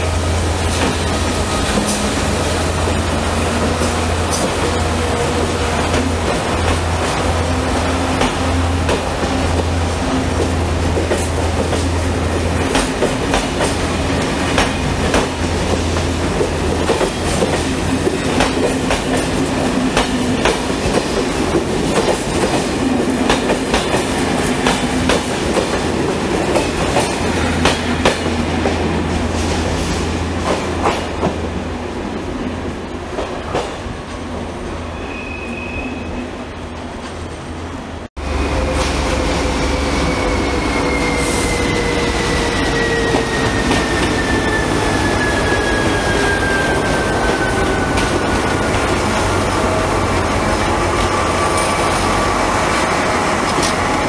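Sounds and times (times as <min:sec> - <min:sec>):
low train hum: 0:00.0 - 0:54.0
high wheel squeal: 0:34.9 - 0:36.4, 0:38.3 - 0:48.9.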